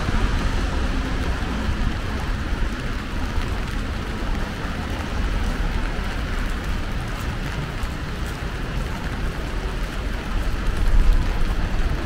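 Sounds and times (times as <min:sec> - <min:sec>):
low rumble: 0:00.0 - 0:05.8
rain falling on street: 0:00.0 - 0:12.0.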